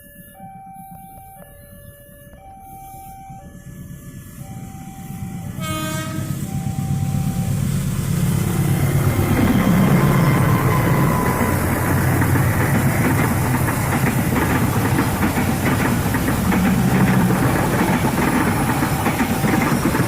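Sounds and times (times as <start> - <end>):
level crossing warning tones: 0.0 - 20.0
locomotive engine and wheel rumble: 0.0 - 20.0
train horn blast: 5.1 - 7.4, 8.4 - 13.7.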